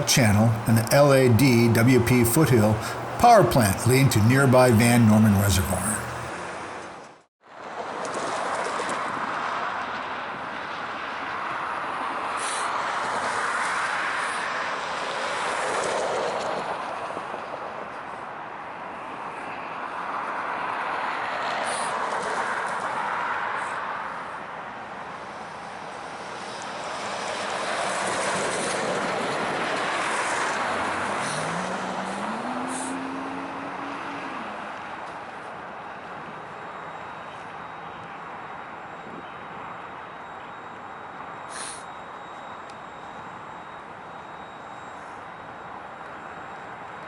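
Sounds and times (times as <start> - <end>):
diesel locomotive rushing noise: 26.9 - 34.1.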